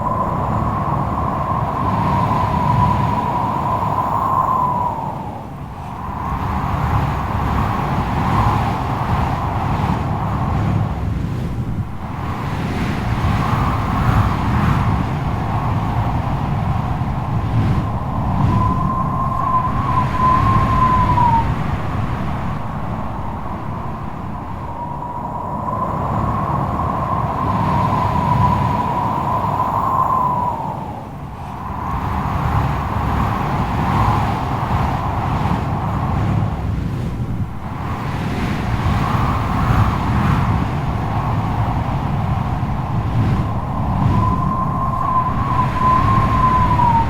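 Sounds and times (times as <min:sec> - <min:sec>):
strong gusty wind rumble: 0:00.0 - 0:47.0
wind whistling: 0:00.0 - 0:47.0
thin steady whistle: 0:17.9 - 0:21.6, 0:43.5 - 0:47.0.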